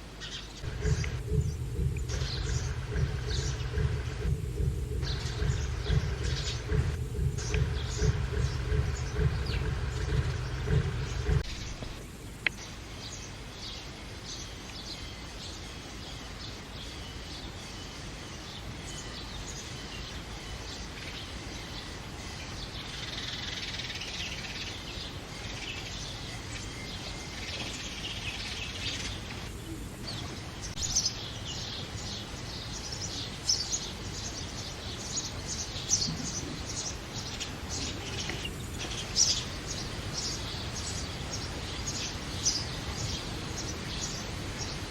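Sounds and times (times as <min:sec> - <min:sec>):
steady background hiss: 0:00.0 - 0:44.9
sparrows chirping: 0:00.1 - 0:12.0, 0:12.6 - 0:44.9.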